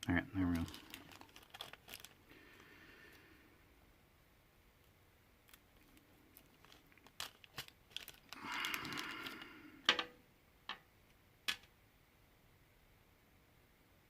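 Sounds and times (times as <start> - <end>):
crinkly plastic being handled: 0.0 - 3.3, 4.8 - 10.1
sharp clicks and taps: 11.5 - 11.7.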